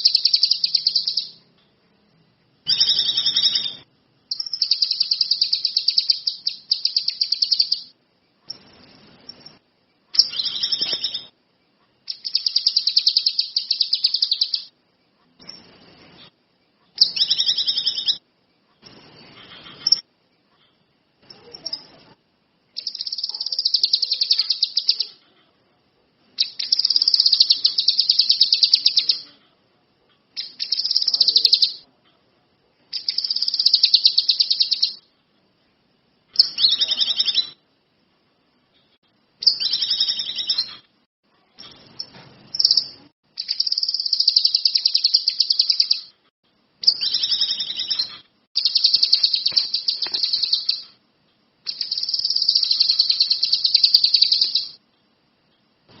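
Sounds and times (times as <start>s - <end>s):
songbird singing high trills: 0.0s - 1.4s, 2.7s - 7.9s, 10.2s - 11.4s, 12.1s - 14.7s, 17.0s - 18.2s, 22.8s - 25.2s, 26.4s - 29.3s, 30.4s - 31.8s, 33.0s - 35.0s, 36.4s - 37.6s, 39.4s - 40.8s, 41.6s - 46.1s, 46.8s - 51.0s, 51.7s - 54.8s.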